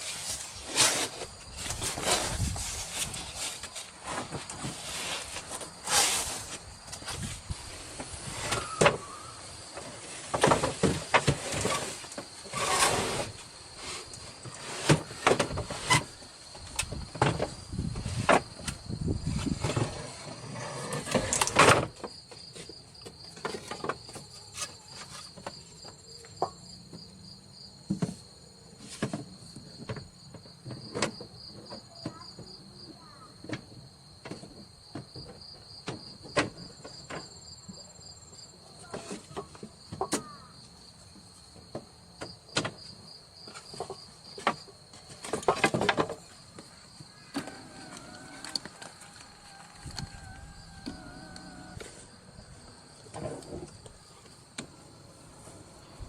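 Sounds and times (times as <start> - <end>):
night insects chirping: 0.1 - 56.0.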